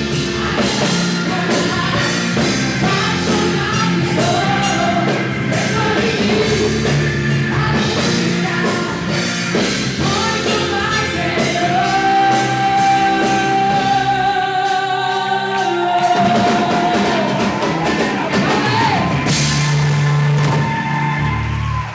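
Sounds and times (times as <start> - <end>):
band with drum kit: 0.0 - 21.9
person singing long notes: 10.0 - 19.3.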